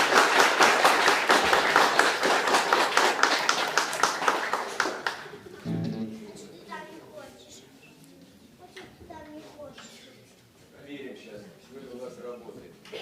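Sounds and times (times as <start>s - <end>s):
hands clapping quickly: 0.0s - 5.4s.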